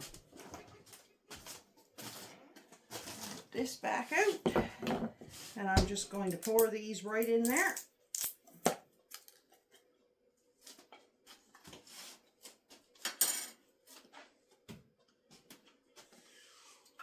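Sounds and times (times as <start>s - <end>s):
kitchen utensil clinks and scrapes: 13.1s - 13.6s.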